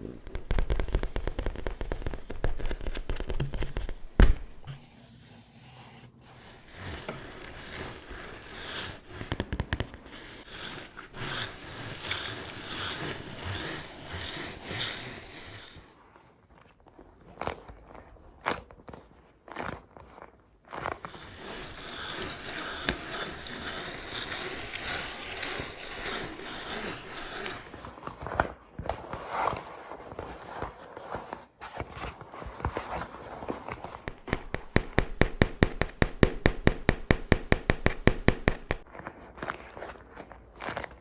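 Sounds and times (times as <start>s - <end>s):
slow scratching with rustling: 0.0s - 17.0s, 20.7s - 28.4s, 32.1s - 38.9s
tapping on objects: 34.0s - 38.9s
loud knock: 34.1s - 38.8s.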